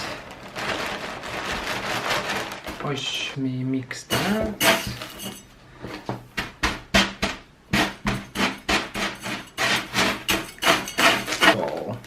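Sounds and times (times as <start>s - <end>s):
potting mix stirred in container: 0.0s - 3.2s, 7.7s - 11.7s.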